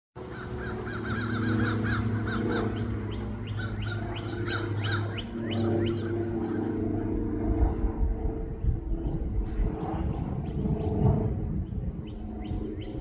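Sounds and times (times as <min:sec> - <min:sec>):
songbirds chirping: 0:00.2 - 0:07.0
steady low hum: 0:00.2 - 0:13.0.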